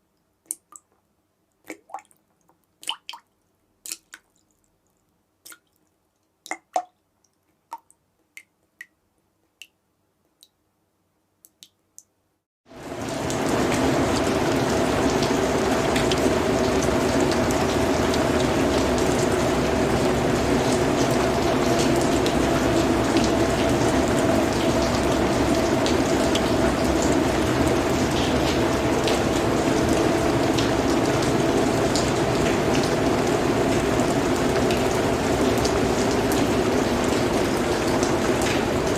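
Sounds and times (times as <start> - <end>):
steady rain: 12.7 - 38.9.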